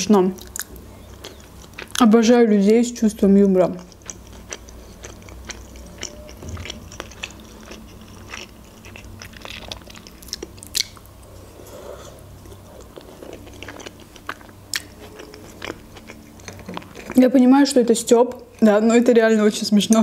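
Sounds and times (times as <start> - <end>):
chewing: 0.4 - 2.0, 3.6 - 17.2.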